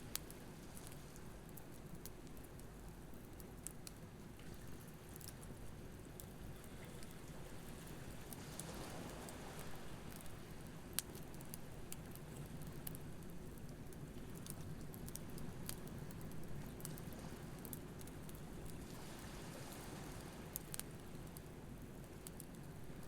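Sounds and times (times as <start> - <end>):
campfire crackling and popping: 9.6 - 18.8, 20.5 - 23.0.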